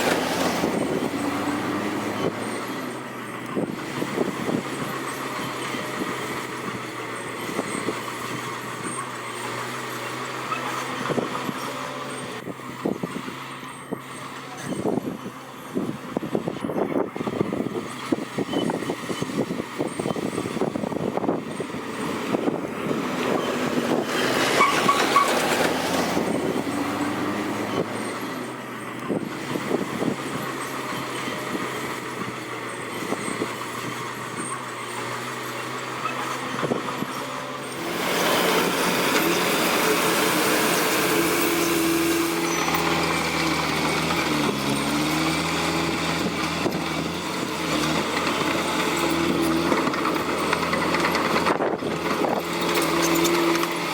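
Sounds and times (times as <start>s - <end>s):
bulldozer diesel engine running: 0.0s - 53.9s
steel tracks clanking: 21.6s - 28.6s, 35.8s - 53.9s.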